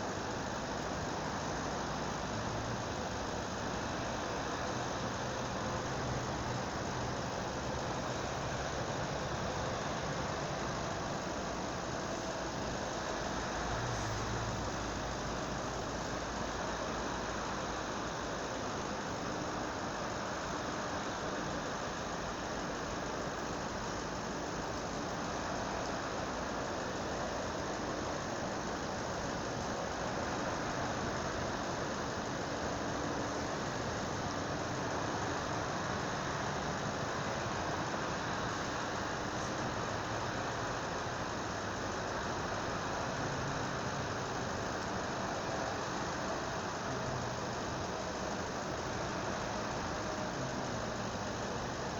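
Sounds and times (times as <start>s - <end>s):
highway traffic rushing: 0.7s - 17.9s.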